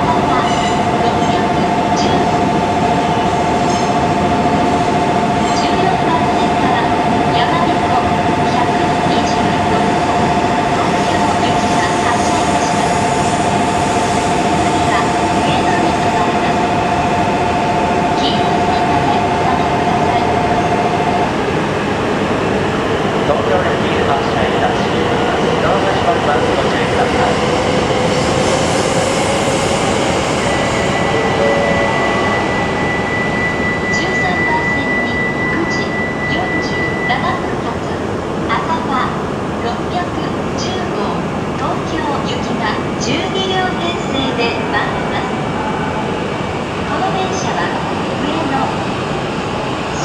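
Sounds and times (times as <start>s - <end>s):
steady high tone: 0.0s - 42.2s
train rushing: 0.0s - 50.0s
two-note whine: 27.0s - 39.2s.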